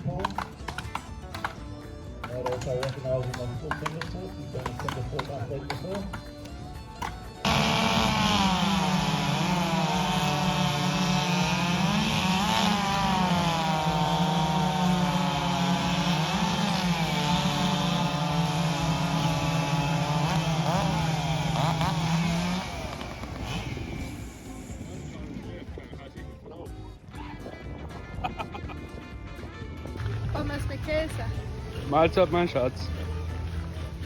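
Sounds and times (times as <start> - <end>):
chainsaw cutting log: 0.0 - 25.3.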